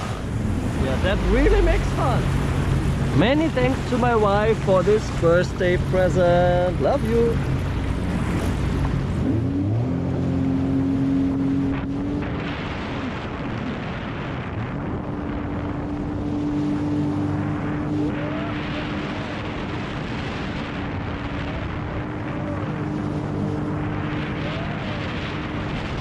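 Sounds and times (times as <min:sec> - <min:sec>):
jet ski engine whine: 0:00.0 - 0:26.0
rushing water: 0:00.0 - 0:26.0
wind: 0:00.0 - 0:26.0.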